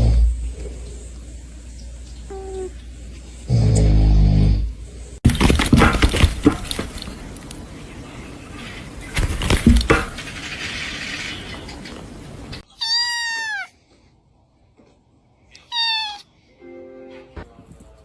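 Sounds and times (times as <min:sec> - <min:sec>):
thumps: 0:09.2 - 0:10.2
cat meowing: 0:12.6 - 0:13.8, 0:15.6 - 0:16.4.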